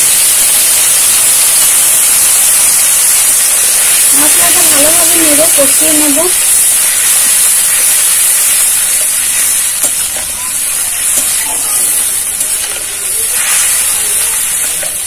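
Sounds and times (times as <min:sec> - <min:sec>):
paste sizzling in hot oil: 0:00.0 - 0:15.0
spatula scraping pan: 0:03.6 - 0:15.0.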